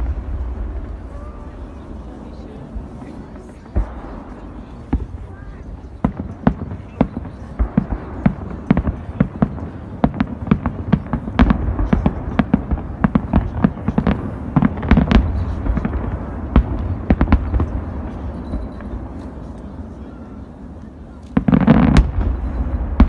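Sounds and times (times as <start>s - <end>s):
low rumble: 0.0s - 5.3s
fireworks bangs: 0.0s - 23.0s.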